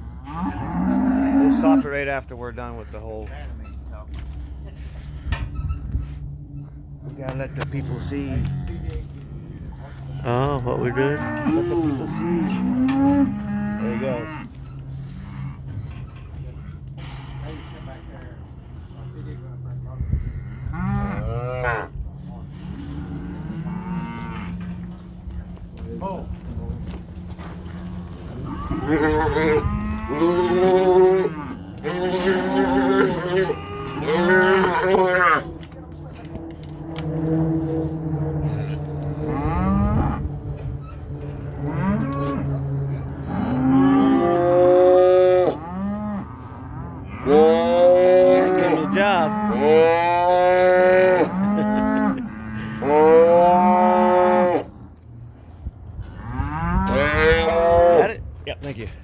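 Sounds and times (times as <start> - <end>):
cattle mooing: 0.0 - 2.0, 10.2 - 16.0, 20.2 - 21.9, 22.6 - 24.9, 27.6 - 35.7, 36.6 - 40.4, 41.1 - 54.8, 56.1 - 58.1.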